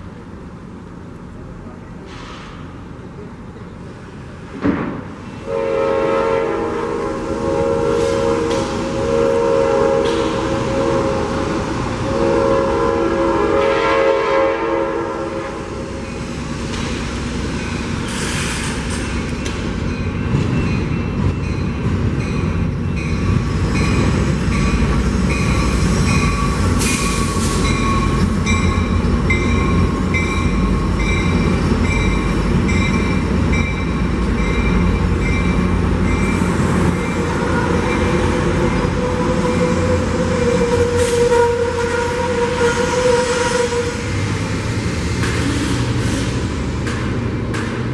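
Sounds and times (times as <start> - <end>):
train rumbling: 0.0 - 47.9
multi-note train horn: 5.4 - 16.0, 37.1 - 44.1.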